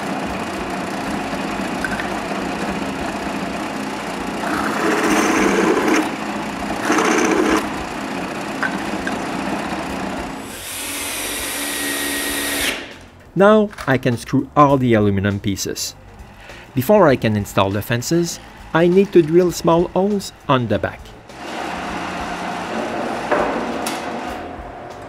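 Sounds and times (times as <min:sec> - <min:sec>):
power drill cutting: 0:00.0 - 0:13.0, 0:21.3 - 0:24.4.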